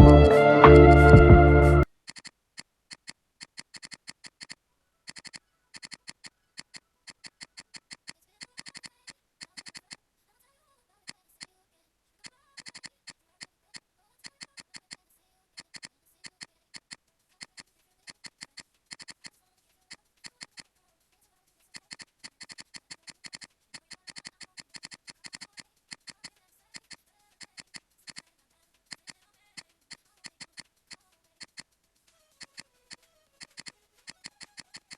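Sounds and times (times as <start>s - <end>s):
computer mouse clicking: 2.0s - 10.0s, 12.2s - 34.9s.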